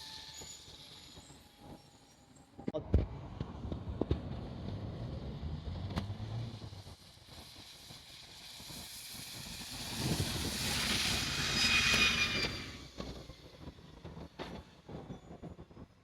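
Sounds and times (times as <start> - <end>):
train running noise: 0.0 - 2.3, 6.8 - 16.0
train wheel squeal: 0.0 - 2.6, 7.3 - 15.8.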